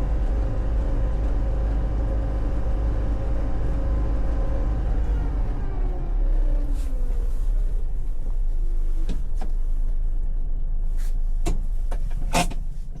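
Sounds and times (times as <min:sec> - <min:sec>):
truck engine idling: 0:00.0 - 0:13.0
sharp clicks and knocks: 0:11.4 - 0:13.0.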